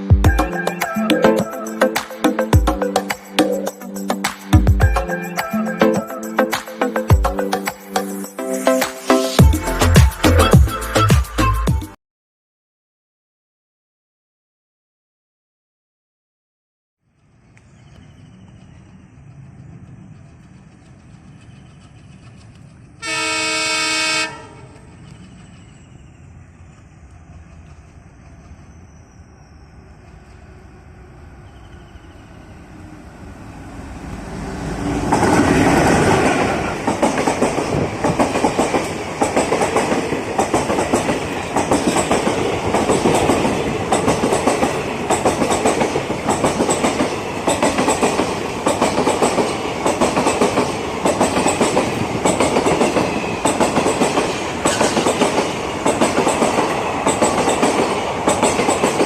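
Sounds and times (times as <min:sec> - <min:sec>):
diesel locomotive passing: 0:17.4 - 0:59.0
train wheels clicking over rail joints: 0:35.0 - 0:59.0.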